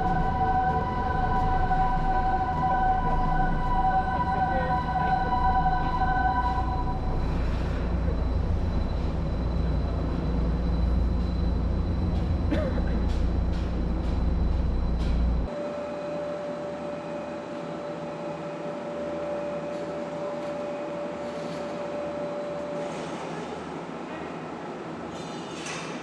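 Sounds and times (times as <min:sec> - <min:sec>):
electronic warning tone: 0:00.0 - 0:12.2
low machinery rumble: 0:00.0 - 0:15.5.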